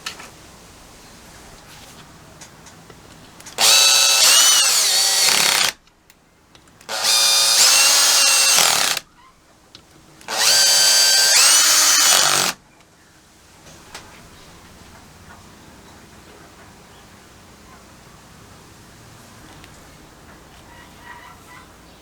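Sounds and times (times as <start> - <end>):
power tool motor whining: 3.5 - 5.8, 6.8 - 9.0, 10.2 - 12.6.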